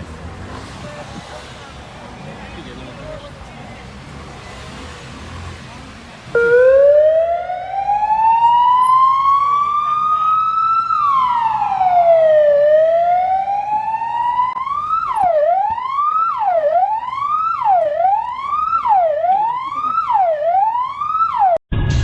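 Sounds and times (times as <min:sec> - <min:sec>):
emergency vehicle siren wailing: 0:05.2 - 0:21.6.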